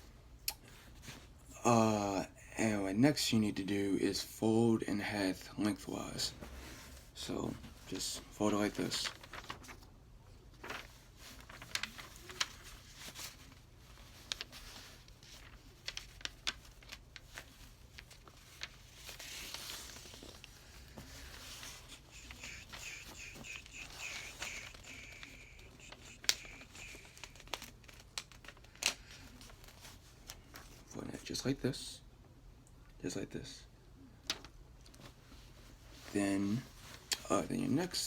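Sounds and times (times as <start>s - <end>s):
paper rustling and crinkling: 6.0s - 30.9s, 34.2s - 38.0s.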